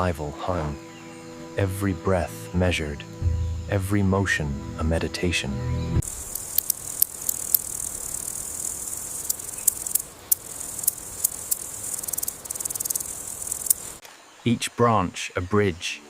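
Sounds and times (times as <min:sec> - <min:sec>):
high-pitched insect chorus: 0:00.3 - 0:14.0
sharp clicks and ticks: 0:06.0 - 0:14.0.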